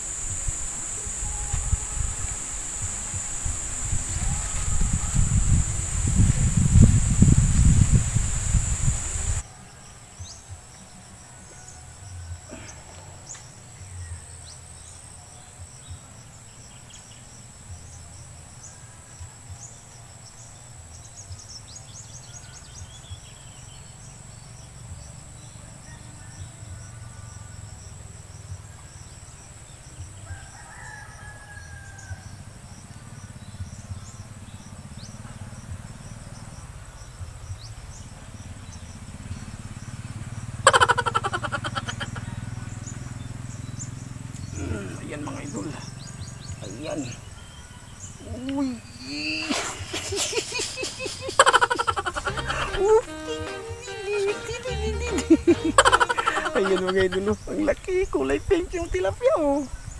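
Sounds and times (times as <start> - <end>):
insects droning: 0.0 - 59.9
longer bird call: 40.6 - 43.0, 44.4 - 57.5.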